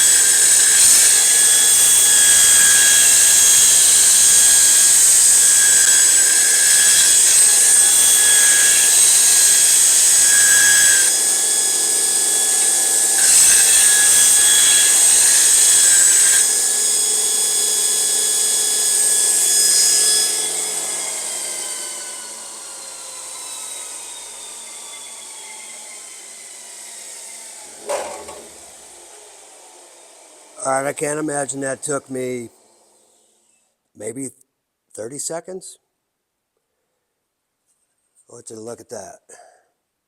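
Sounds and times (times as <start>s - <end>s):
belt grinder whining: 0.0s - 29.5s.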